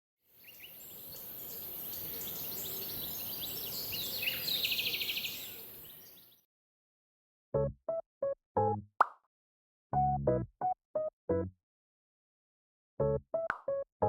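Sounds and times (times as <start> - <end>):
steady outdoor hiss: 0.4 - 6.2
bird fast trill: 0.4 - 6.3
birds chirping and twittering: 0.4 - 6.4.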